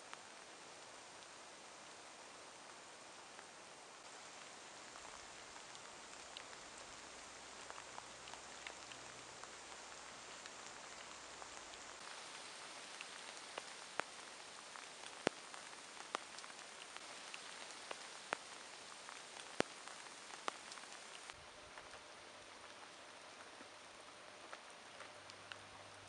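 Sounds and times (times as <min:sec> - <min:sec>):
steady rain hiss: 0:00.0 - 0:26.0
heavy raindrops tapping: 0:04.0 - 0:21.4.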